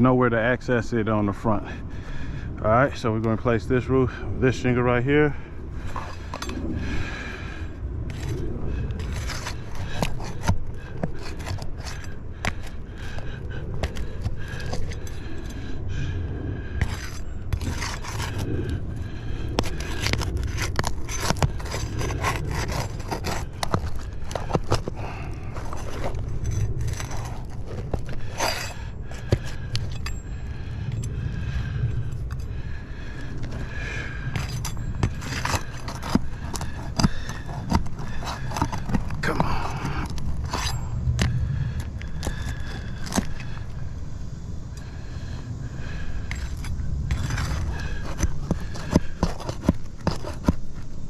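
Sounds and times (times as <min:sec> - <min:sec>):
steady low rumble: 0:00.0 - 0:51.0
hand tool scraping shingles: 0:05.8 - 0:07.0, 0:08.1 - 0:15.7, 0:16.7 - 0:31.2, 0:32.1 - 0:43.7, 0:45.8 - 0:51.0.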